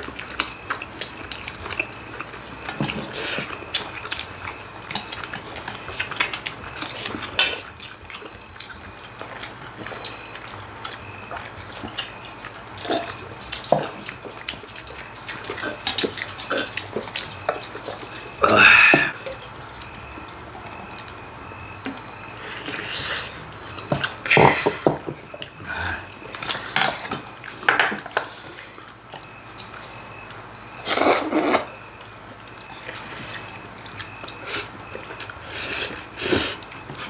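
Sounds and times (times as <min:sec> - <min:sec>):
chewing and slurping: 0:00.0 - 0:37.0.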